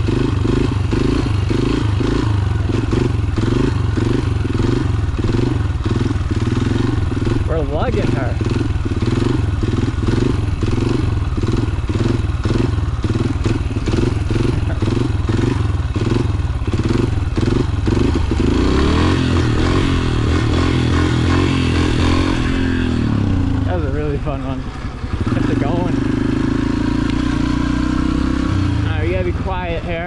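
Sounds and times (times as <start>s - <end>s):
motorcycle engine lugging: 0.0s - 30.0s.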